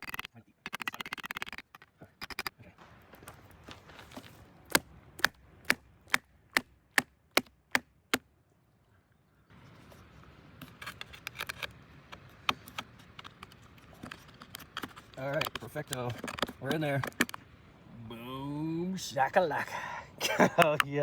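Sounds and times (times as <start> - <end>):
can lid scraping and clicking: 10.6 - 17.4.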